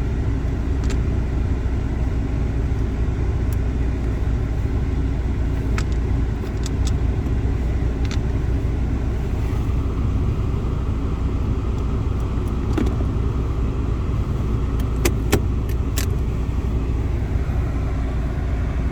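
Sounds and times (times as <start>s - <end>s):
car cabin rumble: 0.0s - 18.9s
sharp clicks and ticks: 5.7s - 7.4s.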